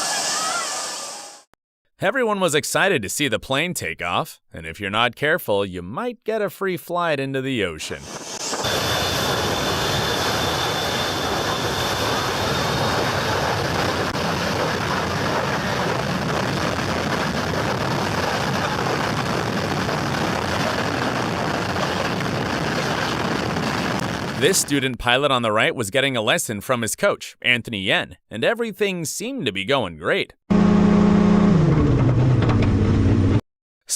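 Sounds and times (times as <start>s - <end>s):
jet engine exhaust blast: 0.0s - 1.5s, 7.9s - 24.4s
thin high engine whine: 8.0s - 22.6s, 30.5s - 33.4s.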